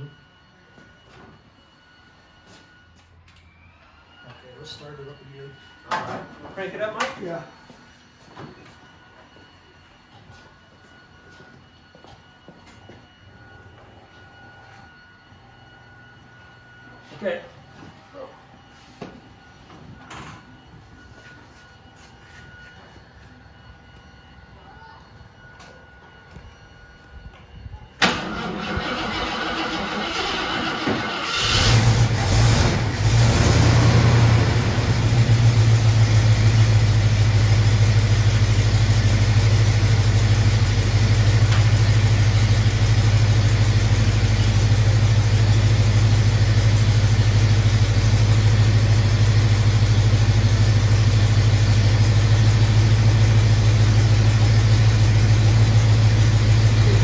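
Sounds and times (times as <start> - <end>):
car engine starting and idling: 28.0 - 57.0.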